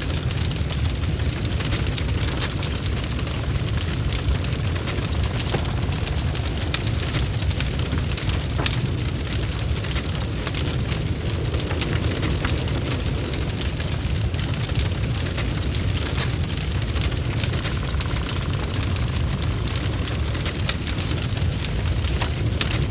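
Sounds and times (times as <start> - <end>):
low rumble of flames: 0.0 - 22.9
burning wood popping and snapping: 0.2 - 22.9.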